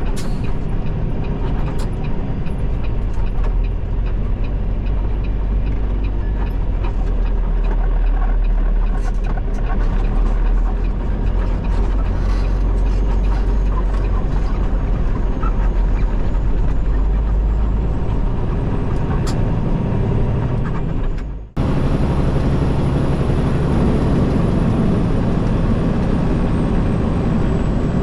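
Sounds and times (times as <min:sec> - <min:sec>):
road noise: 0:00.0 - 0:28.0
truck diesel engine rumbling: 0:00.0 - 0:28.0.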